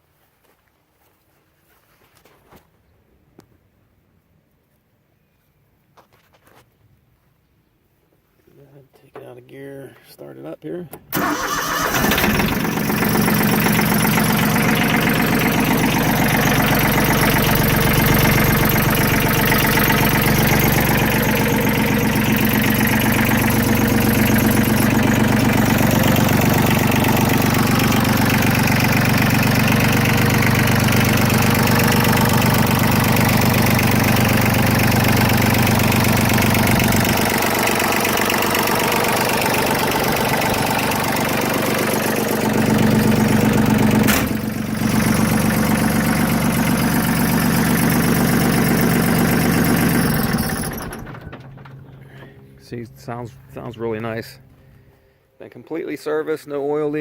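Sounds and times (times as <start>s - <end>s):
tractor diesel engine idling: 11.1s - 55.0s.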